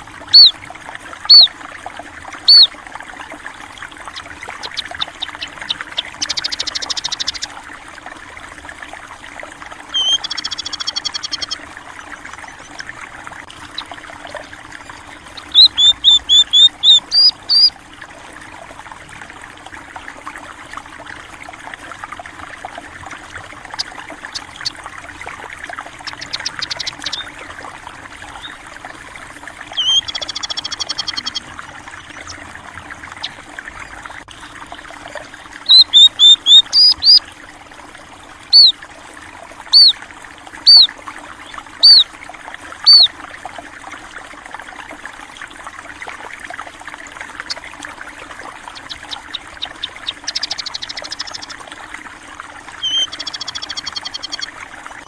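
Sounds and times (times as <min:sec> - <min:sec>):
stream trickling: 0:00.0 - 0:55.0
bird trills: 0:00.3 - 0:00.6, 0:01.2 - 0:01.6, 0:02.4 - 0:02.7, 0:04.1 - 0:07.5, 0:09.9 - 0:11.6, 0:15.2 - 0:17.7, 0:26.0 - 0:27.4, 0:29.7 - 0:32.4, 0:35.7 - 0:37.2, 0:38.5 - 0:38.8, 0:39.7 - 0:40.0, 0:40.7 - 0:42.1, 0:42.8 - 0:43.1, 0:48.6 - 0:51.6, 0:52.8 - 0:54.5
loud sharp bird chirps: 0:00.4 - 0:00.6, 0:01.3 - 0:01.5, 0:02.5 - 0:02.7, 0:10.0 - 0:11.6, 0:15.4 - 0:17.7, 0:29.8 - 0:31.4, 0:35.7 - 0:37.2, 0:39.7 - 0:40.0, 0:40.7 - 0:40.9, 0:41.8 - 0:42.0, 0:42.9 - 0:43.1, 0:48.8 - 0:51.5, 0:52.8 - 0:54.5.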